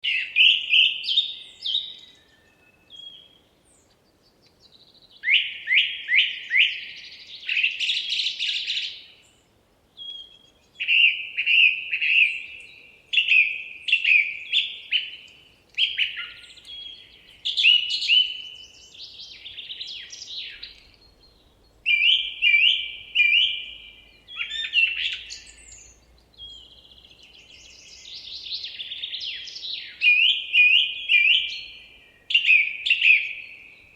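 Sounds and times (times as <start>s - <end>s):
songbird singing: 0.0s - 33.9s.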